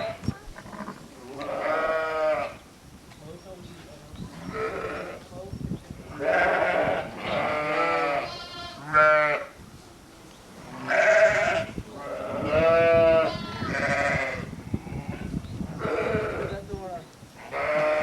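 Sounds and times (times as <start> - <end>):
sheep bleating: 1.3 - 2.6, 4.4 - 5.2, 6.1 - 9.5, 10.7 - 16.5, 17.4 - 18.0.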